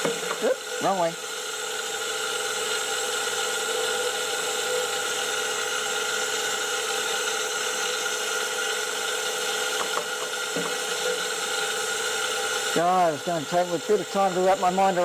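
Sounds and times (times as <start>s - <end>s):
surface grinder whining: 0.0s - 15.0s.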